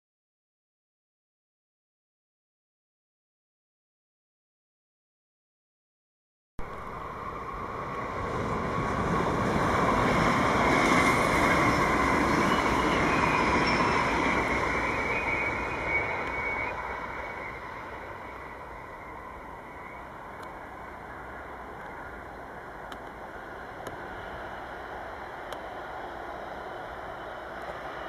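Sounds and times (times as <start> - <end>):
thin high whine: 6.6 - 28.0
train wheels rumbling on rails: 6.6 - 28.0.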